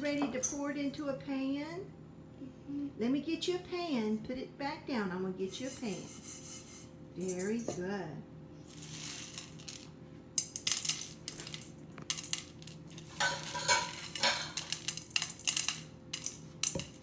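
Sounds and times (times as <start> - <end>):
toy dishes clinking: 10.4 - 17.0.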